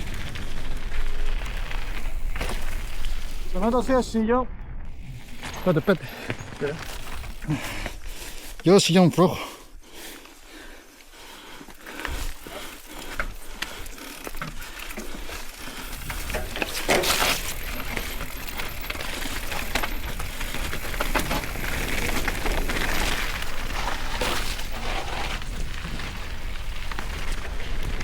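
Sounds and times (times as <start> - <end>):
tyre noise on wet trail: 0.0 - 4.1, 4.9 - 28.0
bike rattling: 0.0 - 9.0, 9.9 - 28.0
bike clicks and knocks: 11.8 - 28.0.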